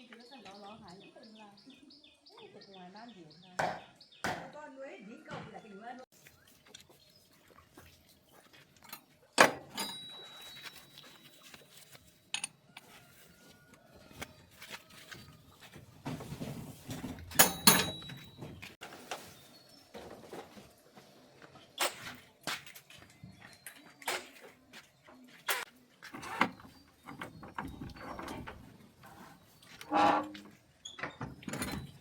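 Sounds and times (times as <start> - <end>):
tools knocking on metal parts: 17.2 - 18.8.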